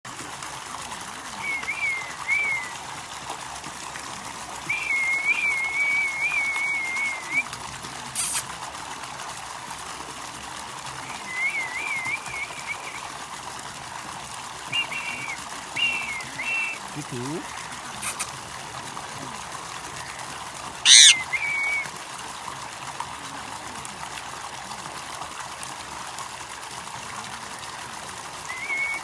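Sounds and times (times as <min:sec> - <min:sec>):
parrot whistling: 0:20.8 - 0:21.8.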